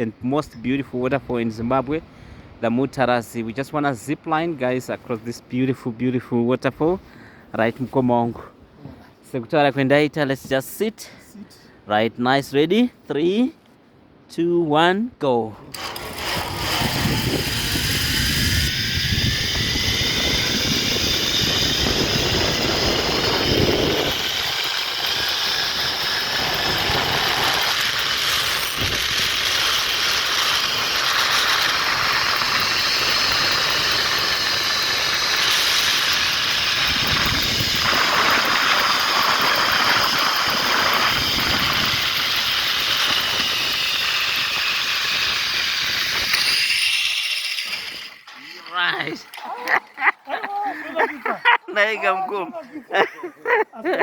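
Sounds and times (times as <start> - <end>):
zip line pulleys whining: 15.7 - 51.6
wind rush on microphone: 16.1 - 29.6, 31.8 - 46.6.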